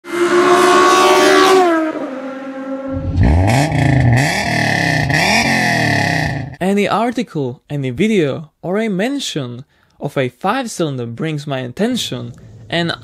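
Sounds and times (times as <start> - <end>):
engine revving and blipping: 0.2 - 6.6
engine winding down: 2.9 - 6.6.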